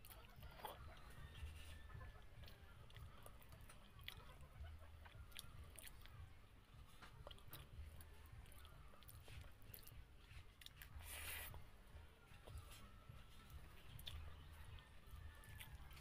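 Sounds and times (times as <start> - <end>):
person chewing food: 0.0 - 16.0
wet lip and tongue clicks: 2.4 - 4.4, 5.0 - 6.2, 7.0 - 11.2, 13.9 - 14.3.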